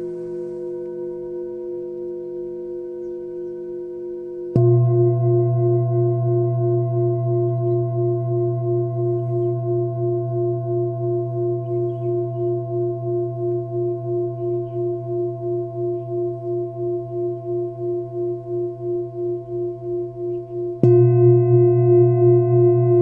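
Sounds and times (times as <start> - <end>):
faint bird chirps: 0.0 - 4.0, 7.4 - 18.0, 19.9 - 20.8
singing bowl ringing: 0.0 - 23.0.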